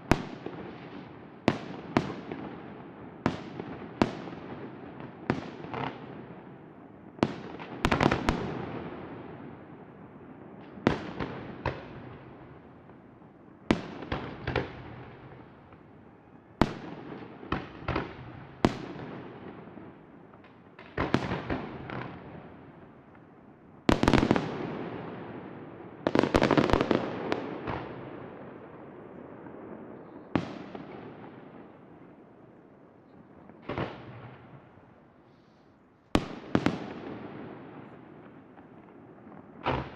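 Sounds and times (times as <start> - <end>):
fireworks bangs: 23.9 - 32.2, 36.2 - 39.9.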